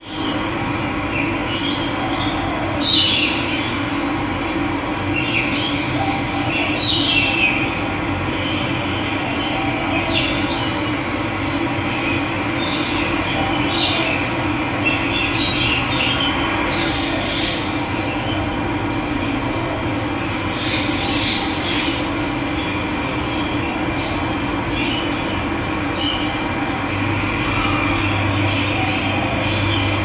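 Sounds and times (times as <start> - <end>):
birds chirping: 20.2 - 30.0.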